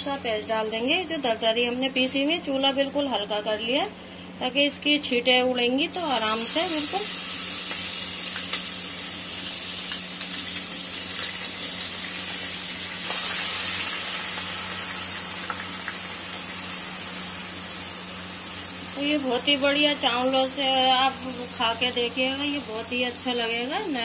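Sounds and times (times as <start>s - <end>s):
paste frying in oil: 5.9s - 21.9s.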